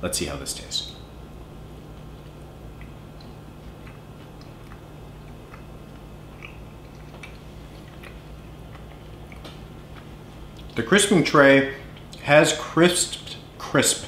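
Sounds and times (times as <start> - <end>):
steady low hum: 0.0 - 14.0
man chewing: 1.8 - 10.8, 11.8 - 12.2.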